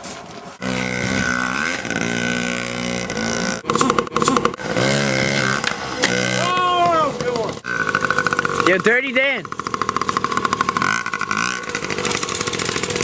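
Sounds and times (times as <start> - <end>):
person belching loudly: 3.3 - 6.9.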